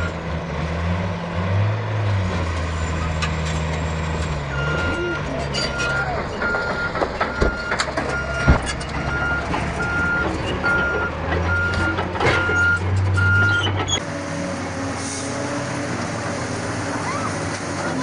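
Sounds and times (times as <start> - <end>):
diesel engine running: 0.0 - 18.0
reversing alarm beeping: 4.5 - 13.7.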